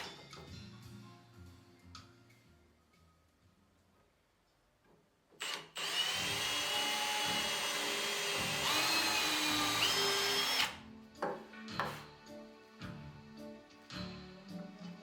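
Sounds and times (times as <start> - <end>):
electric drill motor running: 5.4 - 10.8.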